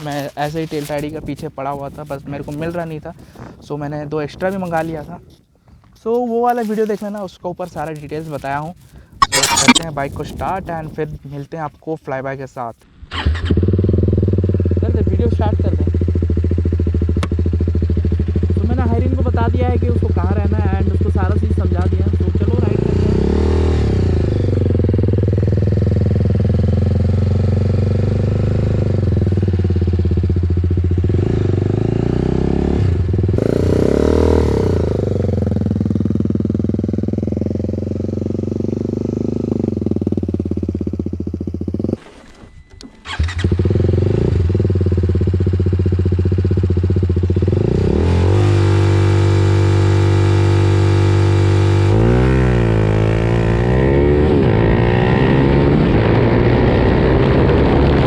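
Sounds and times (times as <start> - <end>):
motorcycle engine revving: 13.2 - 42.2, 43.0 - 58.0.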